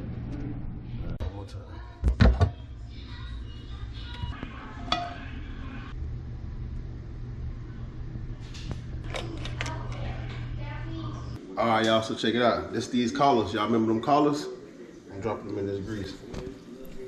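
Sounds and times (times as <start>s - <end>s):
steady low hum: 2.5s - 11.6s
dishes and utensils clinking: 4.8s - 5.6s.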